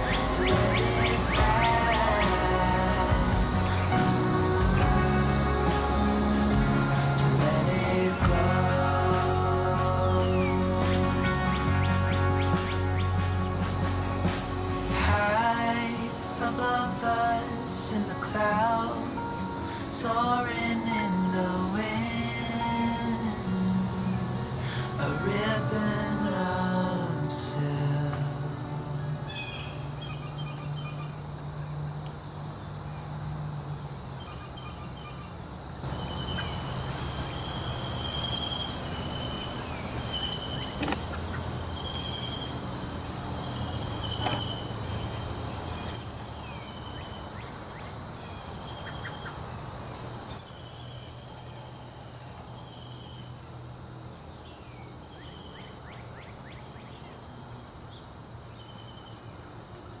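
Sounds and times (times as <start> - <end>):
insects trilling: 0.0 - 60.0
short chirping calls: 34.2 - 53.4.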